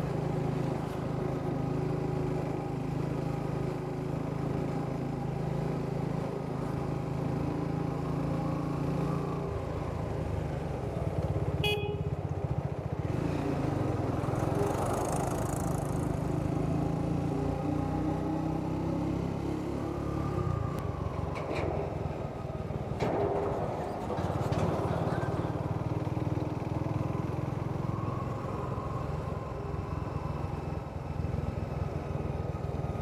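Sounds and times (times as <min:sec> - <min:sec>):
motorcycle engine running: 0:10.9 - 0:16.6
short horn toot: 0:11.6 - 0:12.1.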